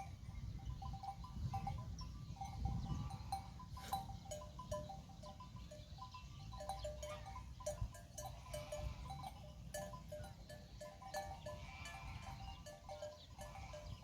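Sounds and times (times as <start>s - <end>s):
sheep bleating: 11.5s - 12.4s.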